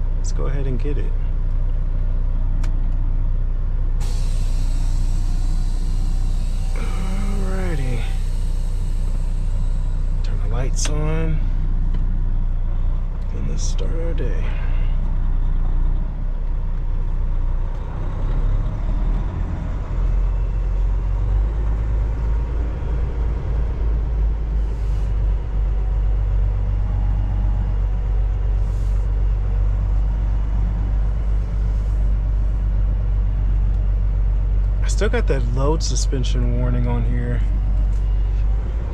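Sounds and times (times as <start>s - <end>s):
truck diesel engine running: 0.0s - 38.9s
air hisses: 4.0s - 10.6s, 24.6s - 25.2s, 28.6s - 29.1s.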